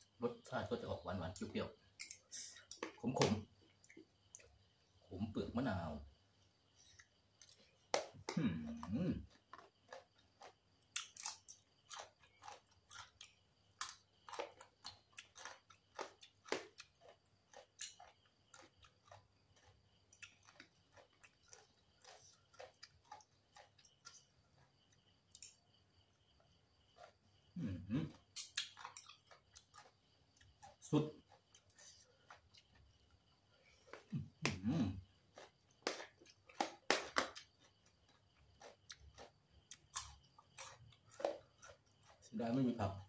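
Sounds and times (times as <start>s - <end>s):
person chewing crunchy food: 6.6s - 43.0s
person humming: 8.3s - 9.2s, 27.6s - 28.1s, 34.6s - 34.9s.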